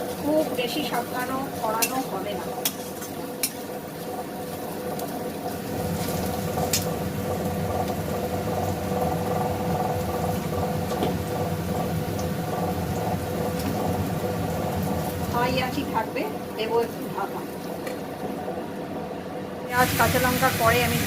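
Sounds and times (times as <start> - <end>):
onions sizzling in a pan: 0.0 - 18.3, 19.7 - 21.0
steady hum: 0.0 - 21.0.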